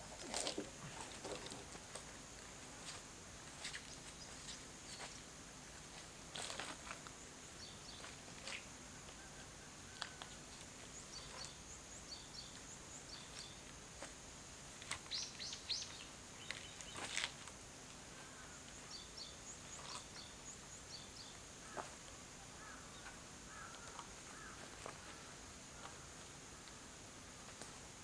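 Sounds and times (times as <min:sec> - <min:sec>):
small birds chirping: 0:11.0 - 0:13.7, 0:15.0 - 0:17.2.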